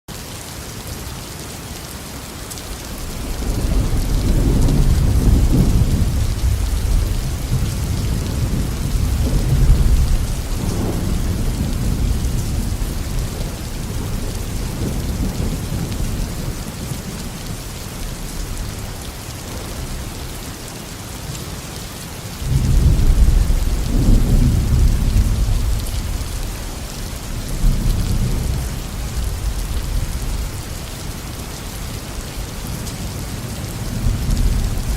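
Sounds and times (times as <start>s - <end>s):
steady rain falling: 0.1s - 34.9s
rolling thunder: 3.0s - 20.1s, 22.4s - 30.8s, 32.7s - 34.9s.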